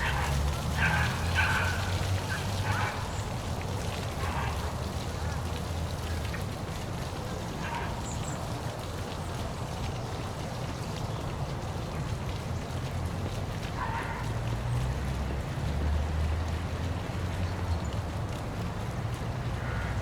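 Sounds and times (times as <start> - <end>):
waterfall splashing: 0.0 - 10.3.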